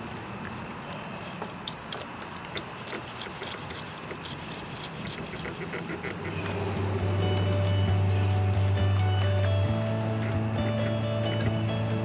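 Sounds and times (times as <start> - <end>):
crickets chirping: 0.0 - 12.0
hand tools clicking and tapping: 1.3 - 6.6.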